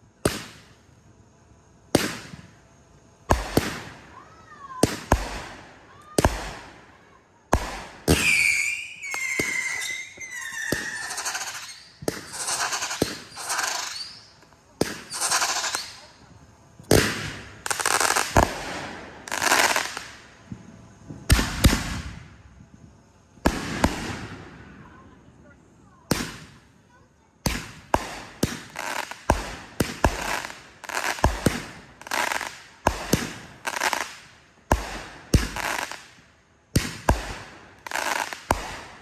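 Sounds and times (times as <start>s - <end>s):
fireworks crackling hiss: 0.0s - 39.0s
fireworks banging: 0.2s - 0.7s, 1.9s - 2.6s, 3.2s - 39.0s
firework whistle falling in pitch: 8.2s - 12.0s.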